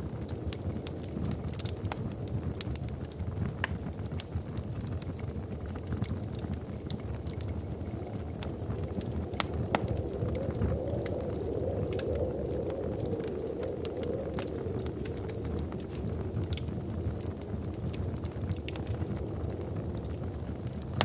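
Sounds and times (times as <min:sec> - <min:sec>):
fire crackling in a fireplace: 0:00.0 - 0:21.0
fire pops and snaps: 0:00.0 - 0:21.0.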